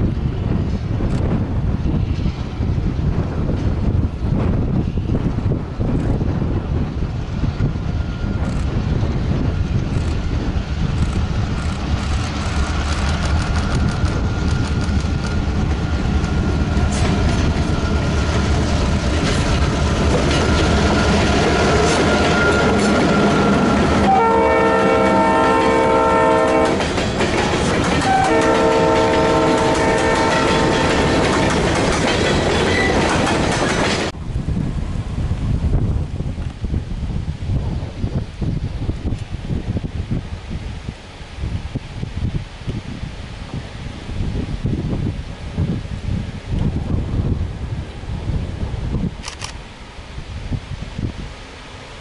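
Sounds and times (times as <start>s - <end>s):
diesel locomotives rumbling past: 0.0s - 52.0s
locomotive horn blasts: 22.2s - 26.8s, 28.0s - 31.2s
wheels clicking over rail joints: 26.6s - 34.2s.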